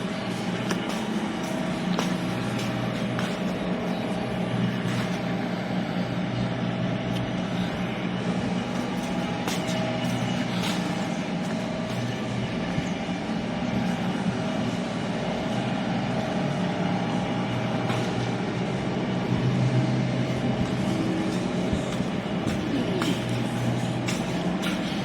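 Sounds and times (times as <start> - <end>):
large engine humming: 0.0 - 25.0.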